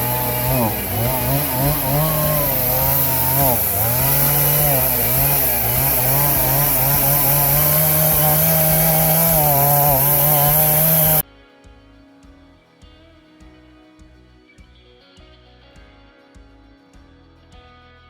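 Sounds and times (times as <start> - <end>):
chainsaw cutting through log: 0.0 - 11.2
soft guitar music: 11.2 - 18.0.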